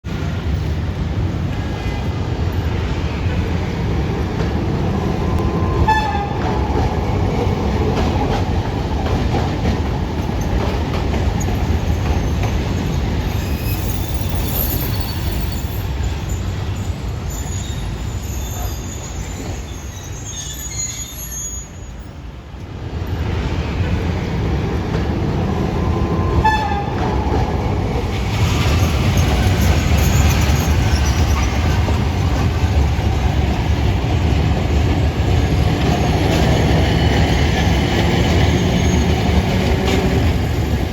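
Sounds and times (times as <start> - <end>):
tram rumbling on rails: 0.0 - 40.9
high wheel squeal: 11.6 - 22.2, 28.8 - 32.4, 38.2 - 39.5.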